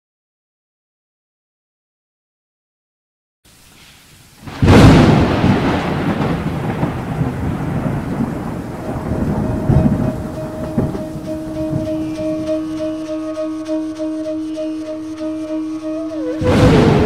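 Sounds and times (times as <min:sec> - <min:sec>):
steady rain: 0:03.5 - 0:17.0
thunderclap: 0:04.4 - 0:13.2, 0:16.2 - 0:17.0
rolling thunder rumbling: 0:04.4 - 0:14.2, 0:16.0 - 0:17.0.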